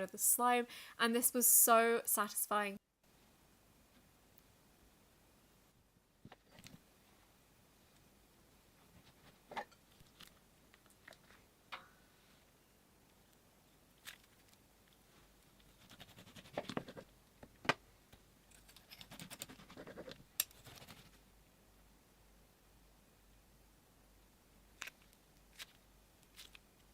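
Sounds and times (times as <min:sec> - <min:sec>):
close crackling of slime: 0:24.8 - 0:26.9.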